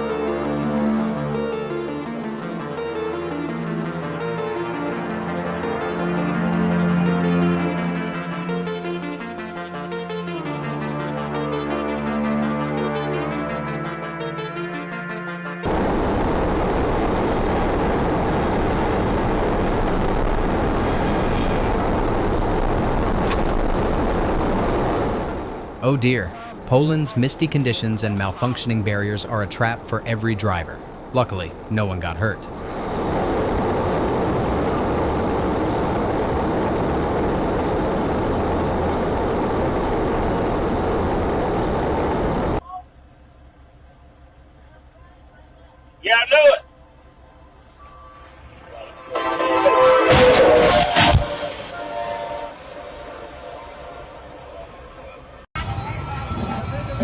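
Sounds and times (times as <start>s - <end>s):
electronic music: 0.0s - 16.7s, 25.8s - 30.8s
vehicle rumble: 32.4s - 51.7s.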